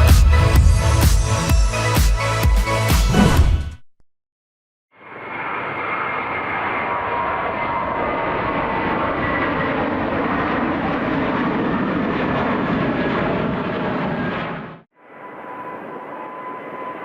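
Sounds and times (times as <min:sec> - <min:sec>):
airliner engines roaring: 0:05.0 - 0:17.0.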